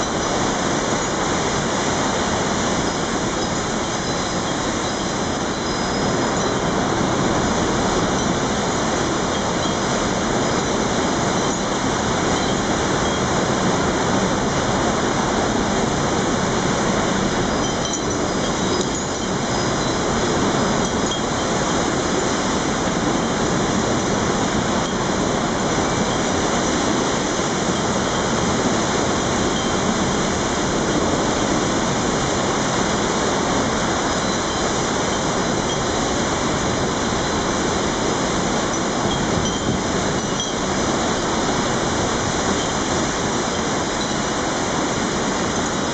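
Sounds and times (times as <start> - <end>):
faint high tinkles: 0.0 - 1.4, 2.4 - 13.4, 17.2 - 27.0, 29.2 - 31.6, 33.8 - 44.5
strong wind blowing: 0.0 - 45.9.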